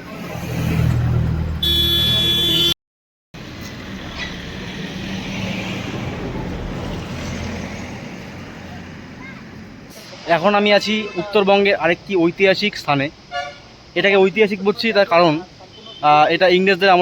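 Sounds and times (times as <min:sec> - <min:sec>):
road traffic noise: 0:00.0 - 0:02.8, 0:03.4 - 0:17.0
horn blaring: 0:01.6 - 0:02.8
vehicle engine rumbling: 0:03.4 - 0:10.5.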